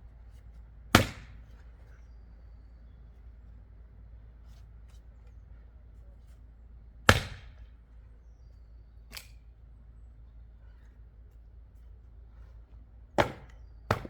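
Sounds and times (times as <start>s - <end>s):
axe striking wood: 0.9s - 1.4s, 7.1s - 7.6s, 13.2s - 14.0s.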